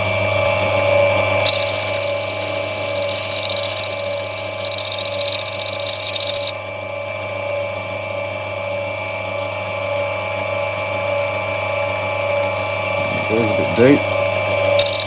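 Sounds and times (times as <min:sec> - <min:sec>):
grinder motor humming: 0:00.1 - 0:06.6, 0:12.4 - 0:15.0
stone grinding on wet wheel: 0:01.4 - 0:06.5, 0:14.8 - 0:15.0.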